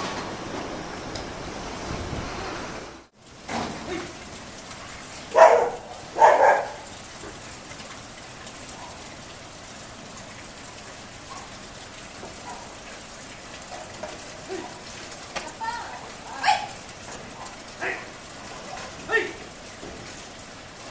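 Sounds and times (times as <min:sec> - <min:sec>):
steady rain: 0:00.0 - 0:20.9
short loud barks: 0:05.4 - 0:06.9.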